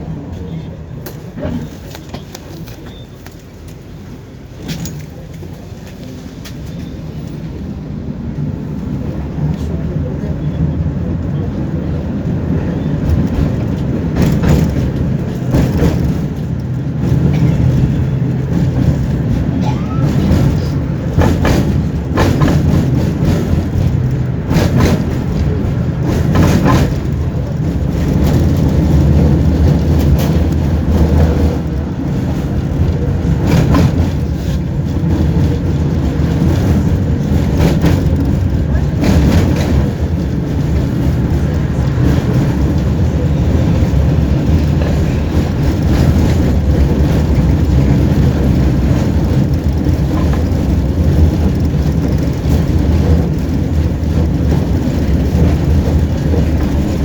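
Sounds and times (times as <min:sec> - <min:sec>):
tram running gear rumbling: 0:00.0 - 0:57.0
knocks and rattles: 0:13.1 - 0:57.0.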